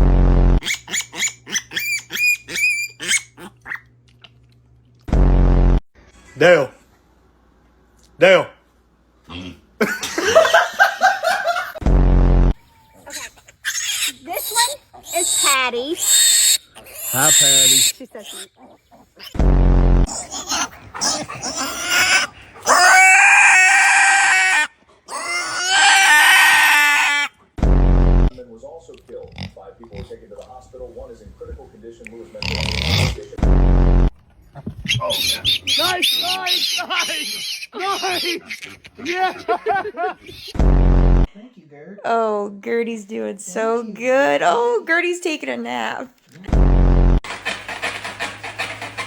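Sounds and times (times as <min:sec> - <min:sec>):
loud low buzz: 0:00.0 - 0:00.6, 0:05.1 - 0:05.8, 0:11.8 - 0:12.6, 0:19.4 - 0:20.1, 0:27.6 - 0:28.4, 0:33.4 - 0:34.2, 0:40.6 - 0:41.3, 0:46.5 - 0:47.2
animal high-pitched calls: 0:00.6 - 0:03.9, 0:12.7 - 0:19.4, 0:20.1 - 0:27.4, 0:34.8 - 0:39.6.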